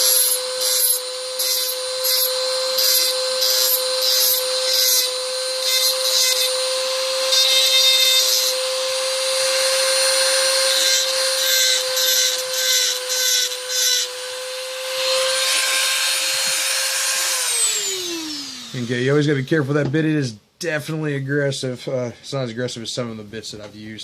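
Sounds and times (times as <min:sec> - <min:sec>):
rotary tool whining: 0:00.0 - 0:19.0.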